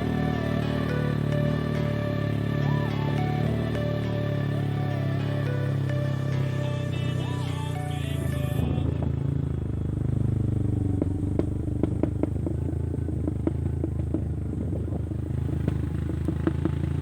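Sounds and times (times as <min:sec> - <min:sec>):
motorcycle engine running: 0:00.0 - 0:17.0
bike clattering over rough road: 0:11.0 - 0:17.0.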